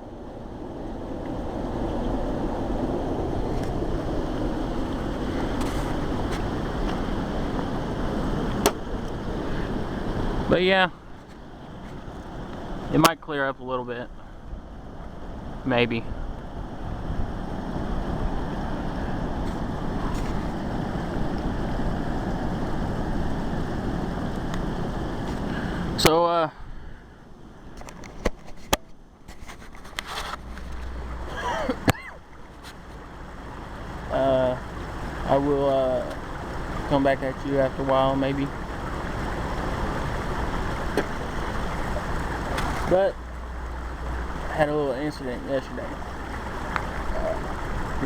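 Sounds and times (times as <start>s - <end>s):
strong wind on microphone: 0.0s - 13.0s, 14.3s - 26.0s.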